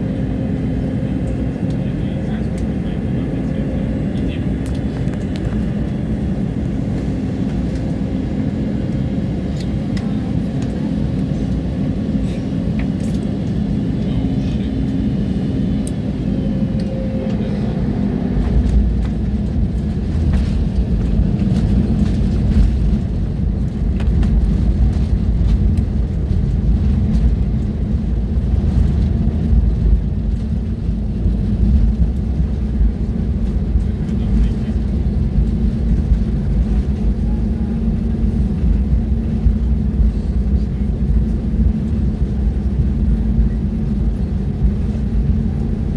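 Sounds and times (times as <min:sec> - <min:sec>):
airliner engine hum: 0:00.0 - 0:45.9.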